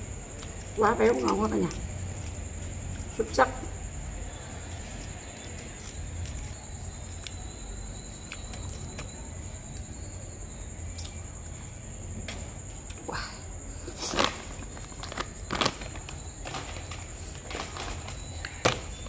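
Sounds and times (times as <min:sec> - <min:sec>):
faint high whine: 0:00.0 - 0:19.0
steady low hum: 0:00.0 - 0:19.0.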